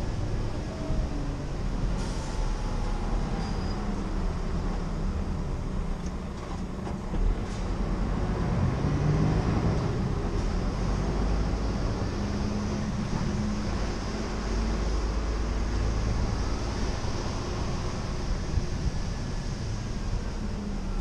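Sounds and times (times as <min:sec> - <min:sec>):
diesel truck engine rumble: 0:00.0 - 0:21.0
road noise: 0:00.0 - 0:21.0.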